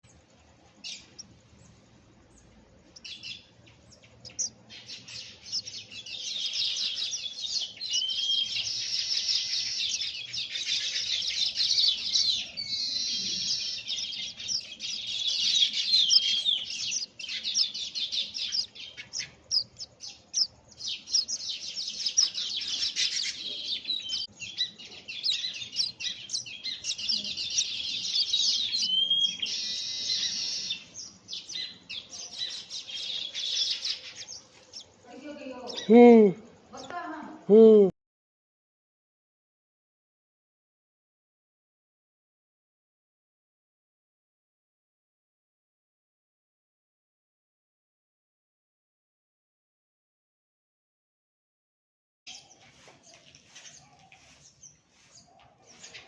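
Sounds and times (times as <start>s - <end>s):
weaver birds chirping chorus: 0.0s - 37.6s, 52.3s - 56.0s.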